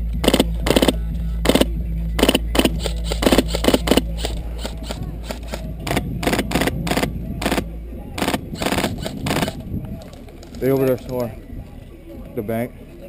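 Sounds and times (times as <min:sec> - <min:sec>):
steady low hum: 0:00.0 - 0:13.0
airsoft guns firing: 0:00.2 - 0:09.6.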